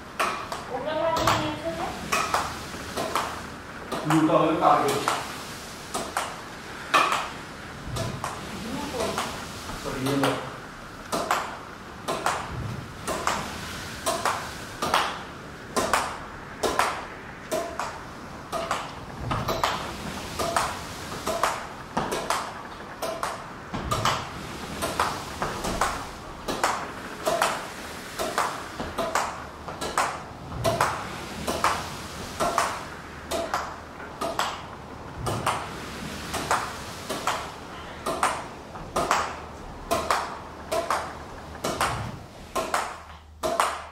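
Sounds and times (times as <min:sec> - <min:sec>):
racket hitting shuttlecock: 0:39.9 - 0:43.9.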